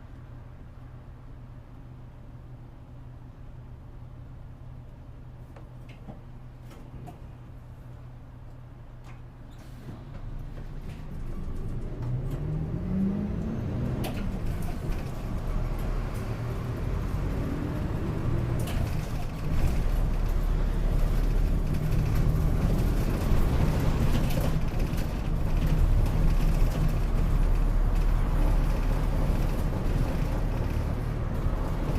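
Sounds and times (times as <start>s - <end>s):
road noise: 5.6s - 31.9s
bus diesel engine accelerating: 9.5s - 31.9s.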